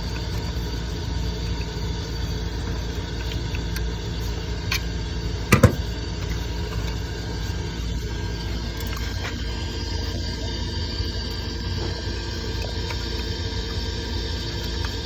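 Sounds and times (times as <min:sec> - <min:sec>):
furnace humming: 0:05.5 - 0:06.0
furnace clicks: 0:05.6 - 0:05.9.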